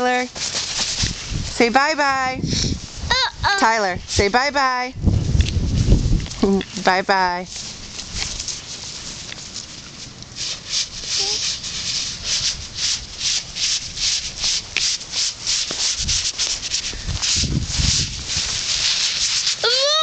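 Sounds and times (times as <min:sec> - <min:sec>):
footsteps crunching in snow: 0:07.5 - 0:19.6.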